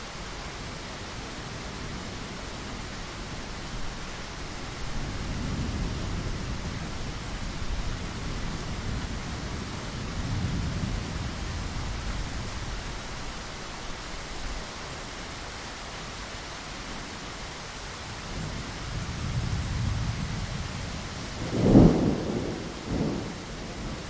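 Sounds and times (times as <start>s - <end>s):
steady rain: 0.0s - 24.0s
distant thunder rolling: 18.4s - 24.0s.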